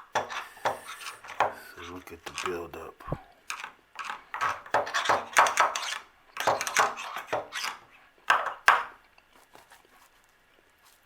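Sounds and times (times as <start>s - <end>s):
hand tool scraping inside valve: 0.0s - 2.6s, 3.5s - 7.9s.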